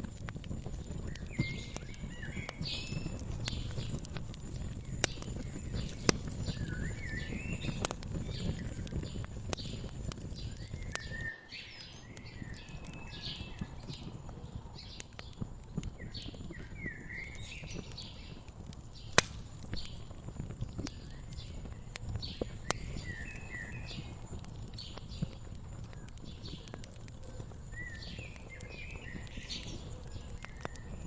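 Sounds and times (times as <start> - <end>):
wood fire crackling: 0.0 - 31.0
birds chirping: 0.6 - 31.0.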